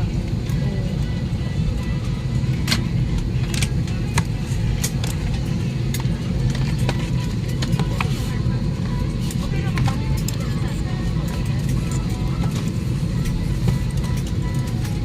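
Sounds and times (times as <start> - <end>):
airplane cabin rumble: 0.0 - 15.0.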